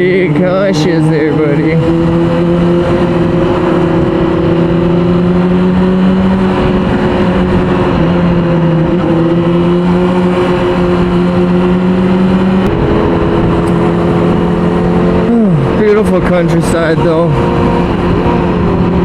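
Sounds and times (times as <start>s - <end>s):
motorcycle engine cruising: 0.0s - 19.0s
wind and road noise: 0.0s - 19.0s.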